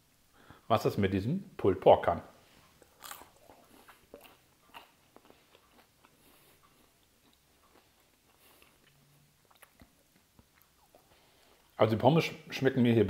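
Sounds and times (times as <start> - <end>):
chewing fries: 2.6 - 11.8.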